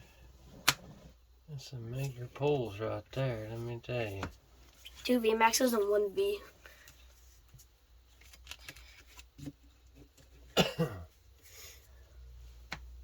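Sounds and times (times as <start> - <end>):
trading cards clicking and rustling: 8.1 - 9.6
person coughing: 10.6 - 11.2.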